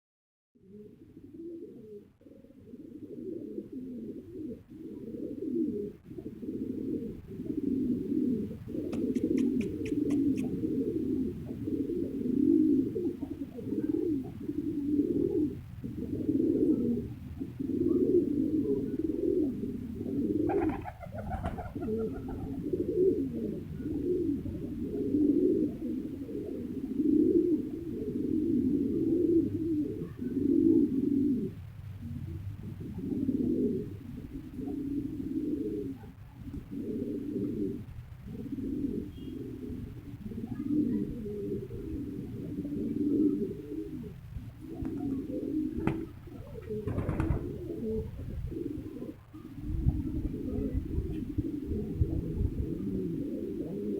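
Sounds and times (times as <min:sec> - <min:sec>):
pigeons cooing: 0:00.6 - 0:53.9
sharp ticks: 0:08.9 - 0:10.6.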